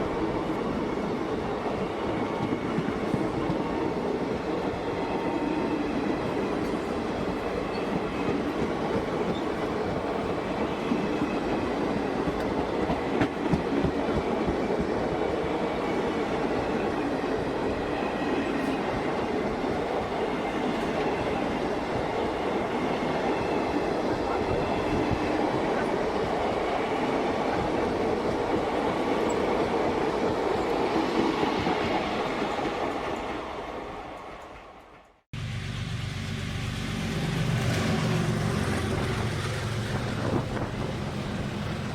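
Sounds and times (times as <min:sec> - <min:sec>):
train wheels rumbling on rails: 0:00.0 - 0:41.9
wind noise: 0:05.8 - 0:33.5, 0:37.7 - 0:41.9
wheels clickety-clack: 0:06.6 - 0:10.2, 0:12.2 - 0:14.9, 0:37.0 - 0:41.9.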